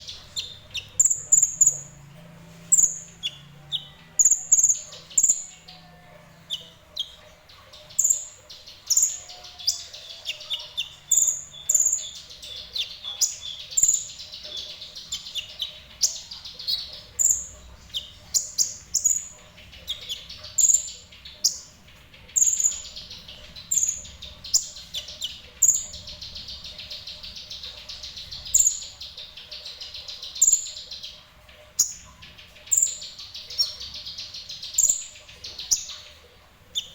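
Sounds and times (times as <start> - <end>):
sunbird chirping and trilling: 0.0 - 36.9.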